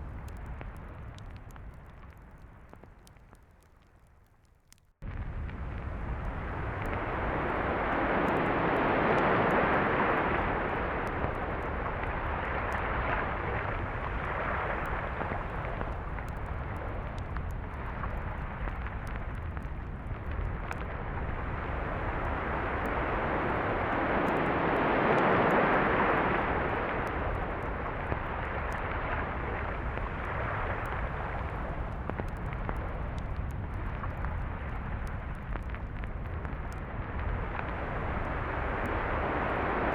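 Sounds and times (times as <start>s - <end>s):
surf breaking on a beach: 6.4s - 15.9s, 21.4s - 31.8s, 37.8s - 39.9s.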